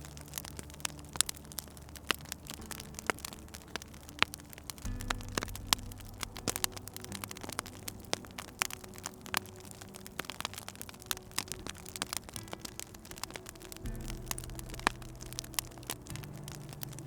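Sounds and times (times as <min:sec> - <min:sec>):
low steady hum: 0:00.0 - 0:17.0
wood fire crackling: 0:00.0 - 0:17.0.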